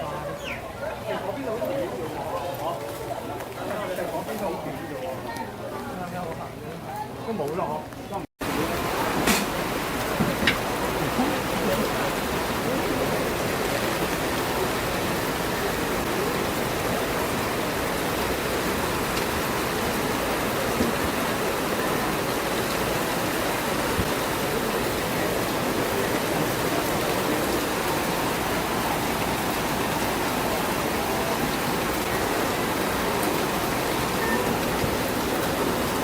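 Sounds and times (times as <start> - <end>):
heavy rain: 8.4 - 36.0.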